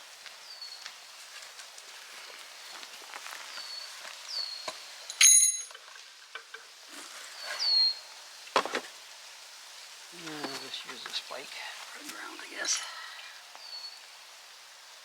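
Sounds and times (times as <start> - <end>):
sharp metallic clink: 5.1 - 5.8
birds whistling falling notes: 7.3 - 8.1, 13.2 - 14.2.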